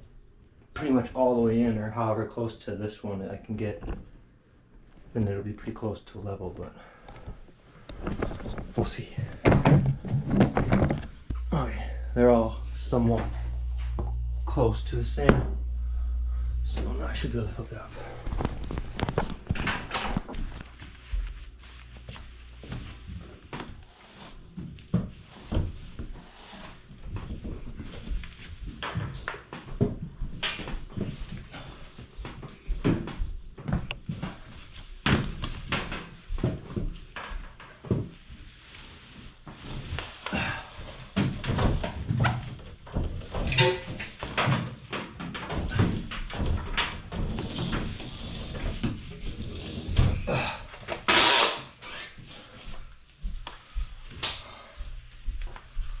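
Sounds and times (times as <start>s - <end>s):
washing machine clunking and scraping: 9.3s - 15.6s.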